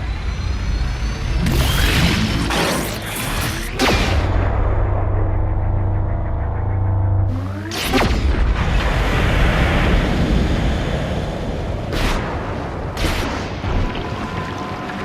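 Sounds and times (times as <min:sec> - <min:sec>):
deep heavy rumble: 0:03.8 - 0:12.9.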